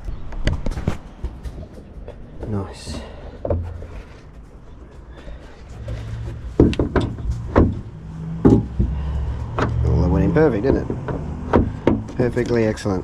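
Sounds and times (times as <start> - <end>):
plastic board knocks and thuds: 6.4 - 9.8, 10.6 - 12.2.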